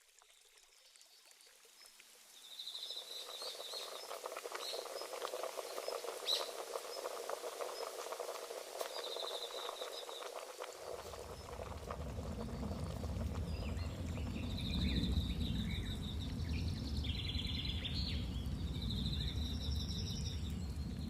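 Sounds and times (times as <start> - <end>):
crackle of tiny clicks: 3.3 - 16.4.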